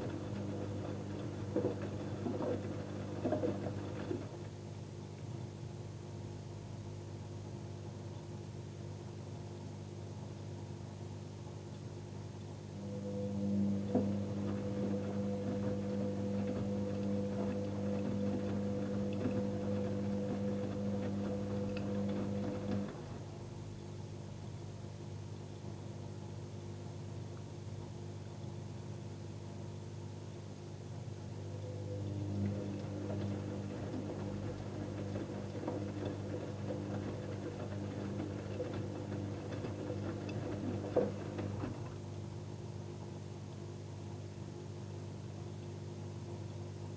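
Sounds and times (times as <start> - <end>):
washing machine motor humming: 0.0 - 4.7, 12.6 - 24.1, 31.0 - 43.1.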